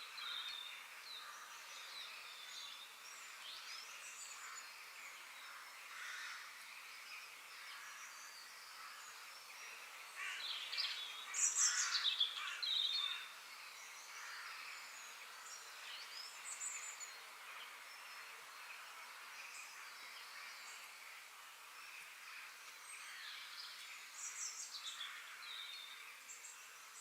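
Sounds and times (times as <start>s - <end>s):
songbirds singing: 0.0s - 27.0s
steady high background hiss: 0.0s - 27.0s.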